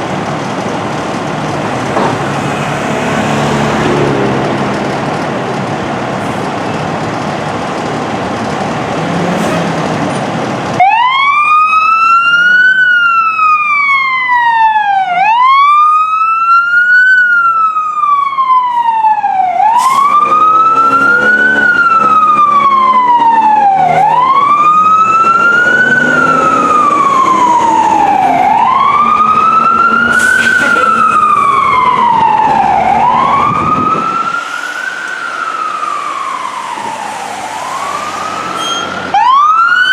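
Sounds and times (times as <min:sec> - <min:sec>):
fire truck siren wailing: 0:00.0 - 0:06.7, 0:10.6 - 0:39.9
traffic and engine noise: 0:00.0 - 0:39.9.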